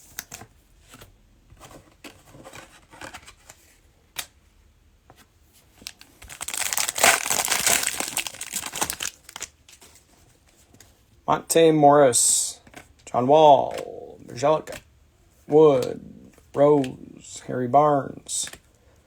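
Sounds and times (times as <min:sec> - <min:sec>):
cellophane wrapper tearing and crinkling: 0:05.8 - 0:09.6
cards tapping: 0:13.6 - 0:13.9.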